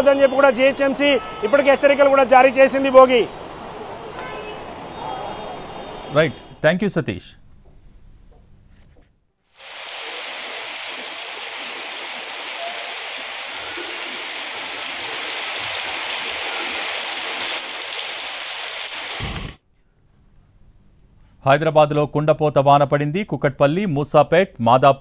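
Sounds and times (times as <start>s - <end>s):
heavy rain on flooded pavement: 9.6s - 19.6s.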